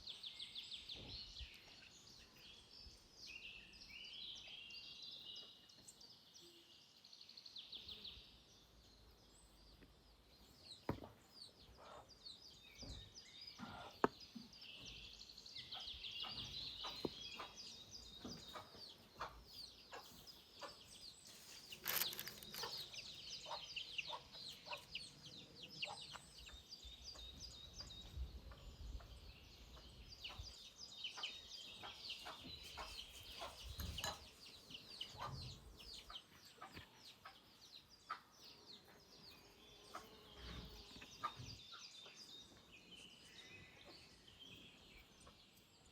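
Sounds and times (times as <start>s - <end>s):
small birds chirping: 0.0s - 45.9s
chickens clucking: 15.6s - 21.8s, 22.5s - 25.0s, 31.1s - 38.3s, 41.0s - 42.2s.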